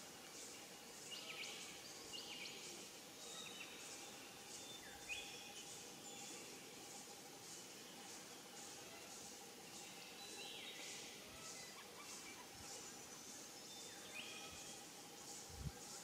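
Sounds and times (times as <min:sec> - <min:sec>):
whistled birdsong notes: 0:00.3 - 0:16.0.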